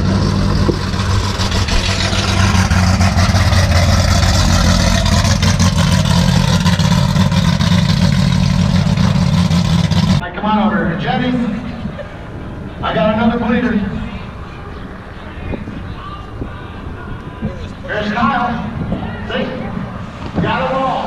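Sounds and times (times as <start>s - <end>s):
engine running loud: 0.0s - 10.3s.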